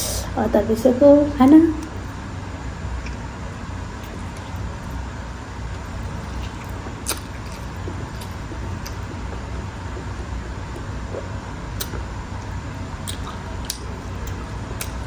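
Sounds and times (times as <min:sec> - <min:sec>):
low background rumble: 0:00.0 - 0:15.0
eating sounds: 0:05.7 - 0:15.0.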